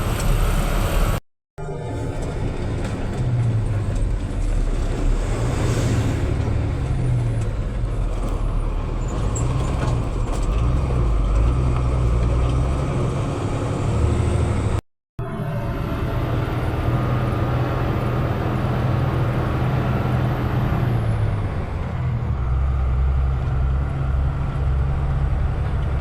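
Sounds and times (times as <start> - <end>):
vehicle engine and road noise: 0.0 - 26.0.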